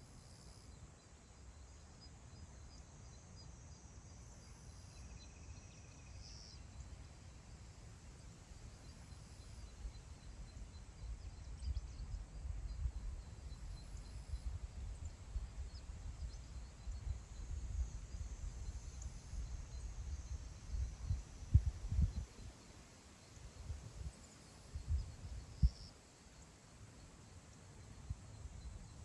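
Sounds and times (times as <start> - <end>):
wind buffeting microphone: 19.5 - 22.4.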